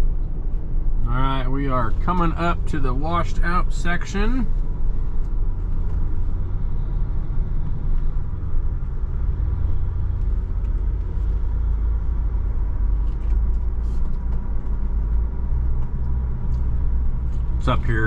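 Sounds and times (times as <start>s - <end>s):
off-road vehicle engine drone: 0.0s - 18.0s.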